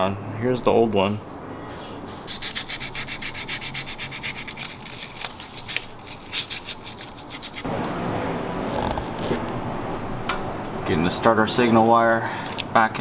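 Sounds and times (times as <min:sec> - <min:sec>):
abrasive scrubbing metal contacts: 0:02.3 - 0:07.7.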